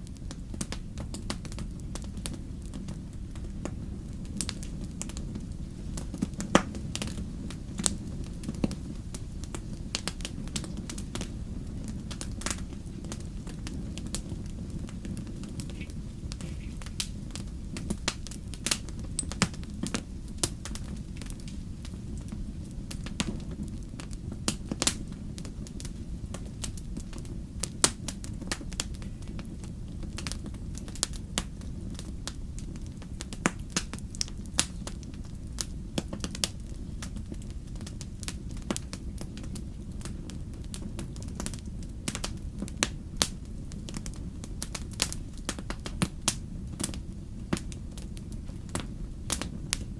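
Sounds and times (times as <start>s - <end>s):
fire crackling and popping: 0.0s - 49.9s
wood fire rumbling: 0.0s - 49.9s.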